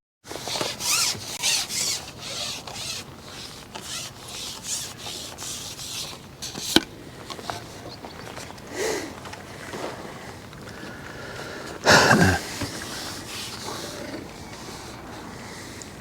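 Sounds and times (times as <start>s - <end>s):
short rubbing swishes: 0.3s - 6.8s, 12.3s - 15.0s.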